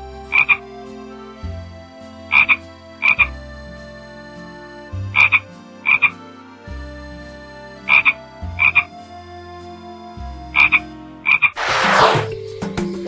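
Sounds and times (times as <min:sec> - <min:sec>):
frog croaking: 0:02.3 - 0:03.2, 0:05.2 - 0:06.1, 0:07.9 - 0:08.9.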